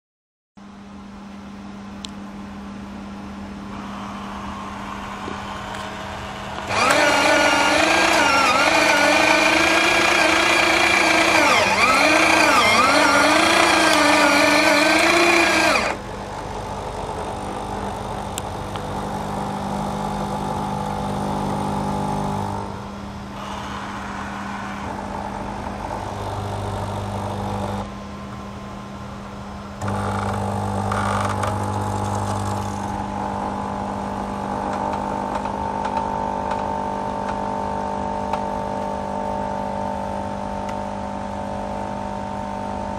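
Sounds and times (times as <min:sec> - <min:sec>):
buzzing and whirring mechanisms: 0:00.6 - 0:42.9
coffee machine humming: 0:01.7 - 0:42.9
loud motor wavering pitch: 0:03.7 - 0:28.8.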